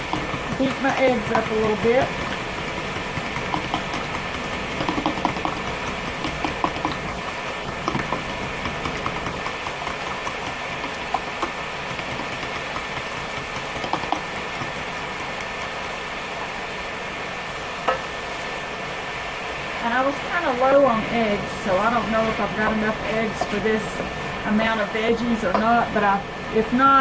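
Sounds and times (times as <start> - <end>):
stove burner fan whirring: 0.0 - 27.0.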